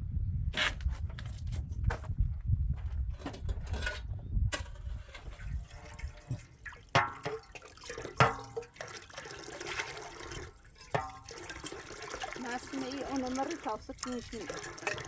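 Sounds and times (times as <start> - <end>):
water splashing and trickling: 5.0 - 15.0.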